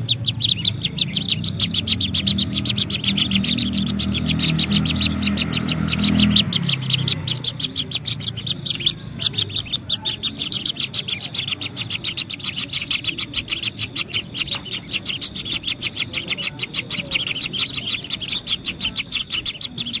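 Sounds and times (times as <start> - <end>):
low rumble: 0.0 - 15.8
bird chirping rapidly: 0.0 - 20.0.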